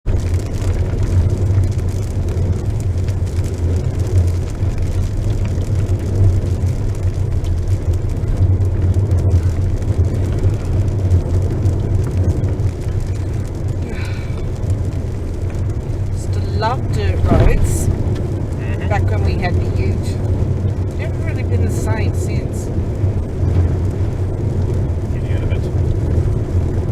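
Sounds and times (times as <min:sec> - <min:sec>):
vehicle driving on gravel: 0:00.0 - 0:26.9.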